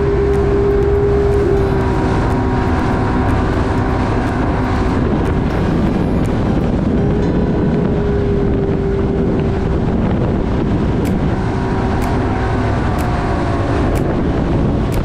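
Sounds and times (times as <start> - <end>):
steady motor hum: 0.0 - 15.0
wind rumbling on microphone: 0.0 - 15.0.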